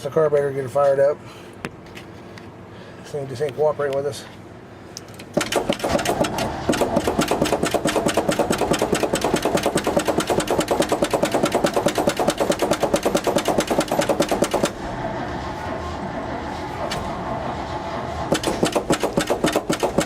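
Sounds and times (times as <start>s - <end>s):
starter motor cranking engine: 5.4s - 14.8s, 18.3s - 20.0s.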